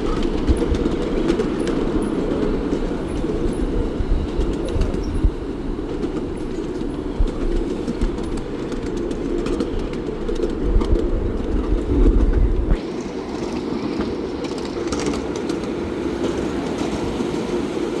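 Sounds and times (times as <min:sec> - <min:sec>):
train rumbling on track: 0:00.0 - 0:18.0.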